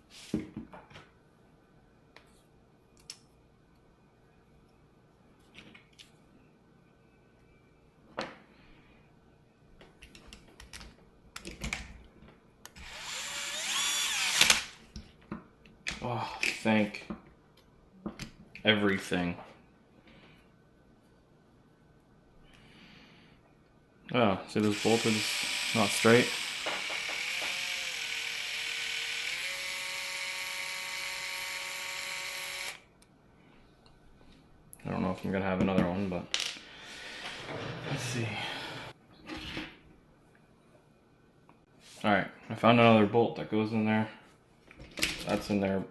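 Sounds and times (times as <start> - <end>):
electric screwdriver whining: 12.8 - 14.7, 24.6 - 32.8.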